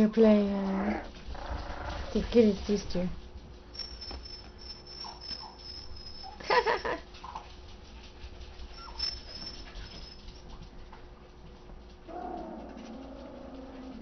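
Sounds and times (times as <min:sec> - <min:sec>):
puppies squeaking and whimpering: 0:08.8 - 0:09.3.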